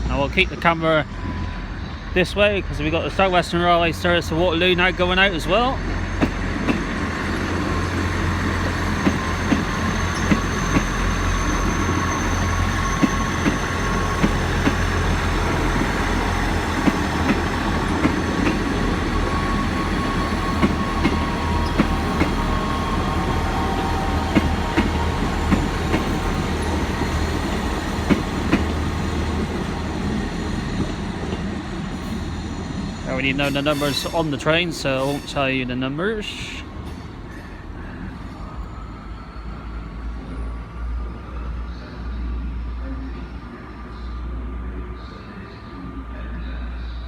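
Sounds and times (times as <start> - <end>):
diesel train engine rumble: 0.0 - 47.0
faint whining from wheels: 0.2 - 34.2.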